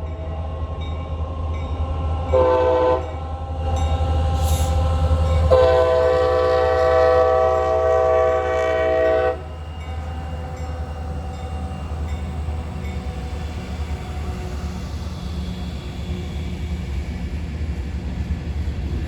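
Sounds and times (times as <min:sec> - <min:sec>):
diesel locomotive rumble: 0:00.6 - 0:19.0
train air horn blast: 0:02.4 - 0:03.1, 0:05.5 - 0:09.5.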